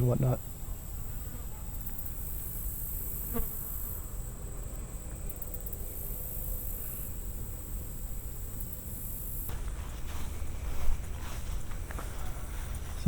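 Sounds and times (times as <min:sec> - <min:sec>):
insects trilling: 0:00.0 - 0:09.5.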